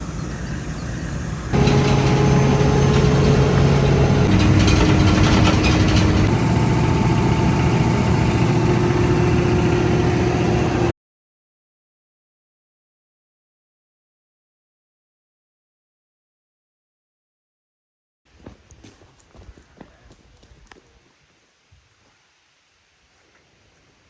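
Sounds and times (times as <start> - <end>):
engine running: 0.0 - 10.9.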